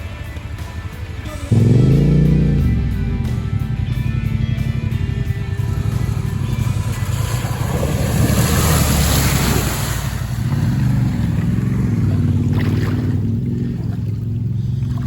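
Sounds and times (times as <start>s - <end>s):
motorcycle engine revving: 0.0s - 15.0s
water splashing: 3.6s - 15.0s.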